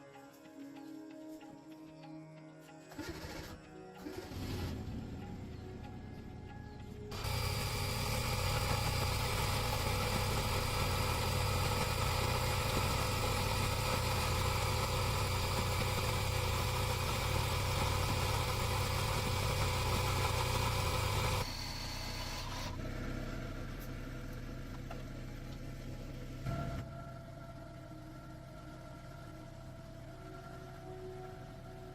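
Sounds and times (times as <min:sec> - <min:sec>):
car engine idling: 0:04.0 - 0:31.9
quiet steady hum: 0:23.8 - 0:31.9.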